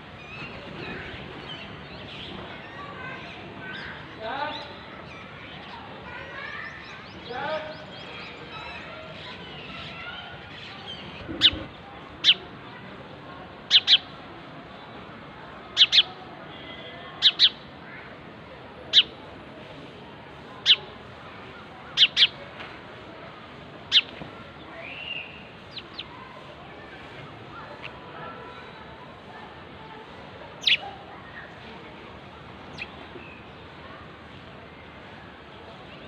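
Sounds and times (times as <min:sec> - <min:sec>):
small birds chirping: 0:00.1 - 0:12.9, 0:13.6 - 0:14.2, 0:15.7 - 0:16.3, 0:17.1 - 0:18.1, 0:18.9 - 0:19.2, 0:20.6 - 0:20.9, 0:21.9 - 0:22.4, 0:23.8 - 0:28.7, 0:29.8 - 0:31.7, 0:32.6 - 0:33.8.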